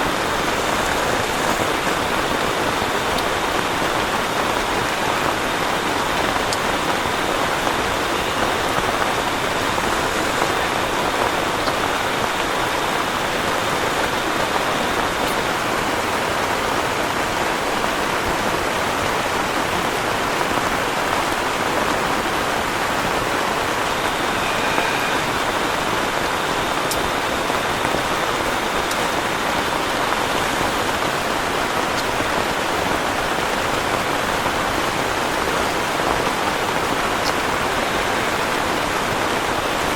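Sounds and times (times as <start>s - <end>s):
heavy rain: 0.0s - 39.9s
raindrop ticks: 28.7s - 33.1s, 36.1s - 38.4s.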